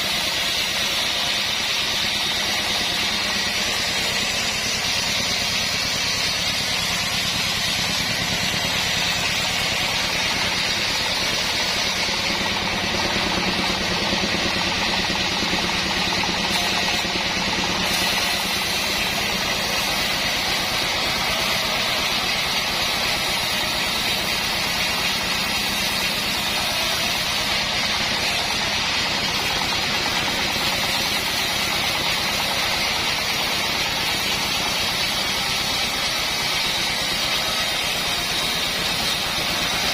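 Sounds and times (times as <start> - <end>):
band saw blade hissing: 0.0 - 39.9
engine running: 0.0 - 39.9.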